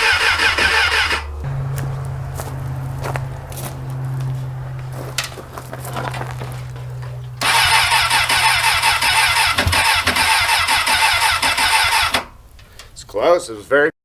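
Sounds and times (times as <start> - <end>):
motorcycle starter cranking: 0.0 - 1.7, 6.1 - 13.0.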